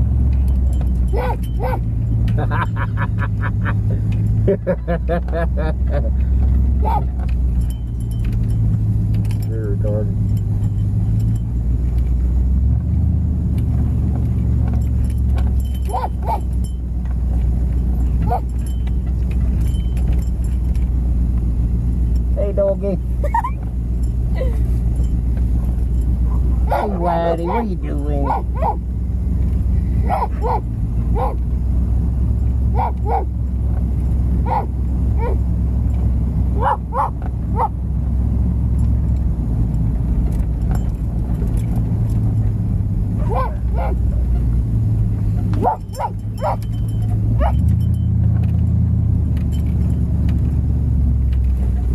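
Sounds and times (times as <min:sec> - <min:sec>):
truck engine and road rumble: 0:00.0 - 0:51.9
dog yipping: 0:01.1 - 0:01.9, 0:06.8 - 0:07.2, 0:15.8 - 0:16.5, 0:18.2 - 0:18.6, 0:25.6 - 0:28.8, 0:30.0 - 0:31.4, 0:32.8 - 0:33.3, 0:34.4 - 0:35.4, 0:36.6 - 0:37.8, 0:43.2 - 0:44.5, 0:45.4 - 0:46.8, 0:47.4 - 0:47.7.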